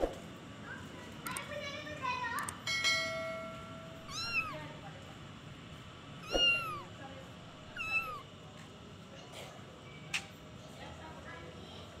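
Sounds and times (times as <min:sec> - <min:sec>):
kitten meowing: 0:04.0 - 0:04.6, 0:06.2 - 0:06.9, 0:07.7 - 0:08.3.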